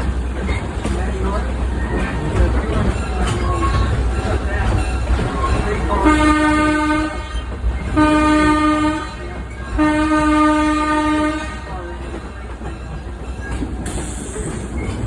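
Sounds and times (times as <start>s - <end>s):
train rumbling on track: 0.0s - 15.0s
locomotive horn blasts: 6.0s - 11.8s.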